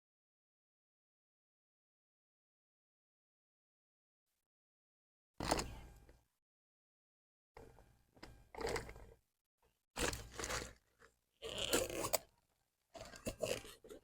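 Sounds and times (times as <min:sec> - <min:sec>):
crunching and rustling: 0:10.0 - 0:12.3.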